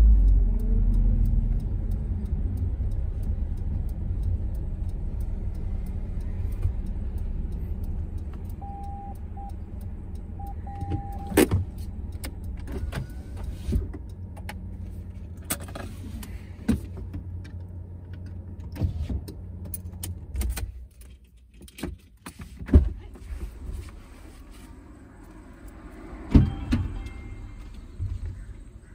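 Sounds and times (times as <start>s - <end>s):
short beeps: 8.5s - 9.6s, 10.4s - 11.4s.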